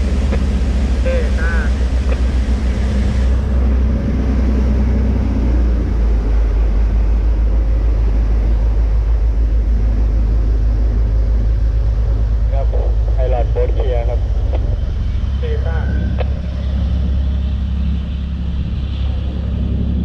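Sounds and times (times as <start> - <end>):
ship engine running: 0.0 - 20.0.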